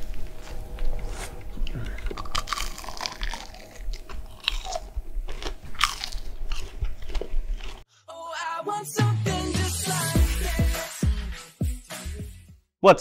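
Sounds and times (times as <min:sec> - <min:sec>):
person chewing and crunching food: 0:00.2 - 0:07.9.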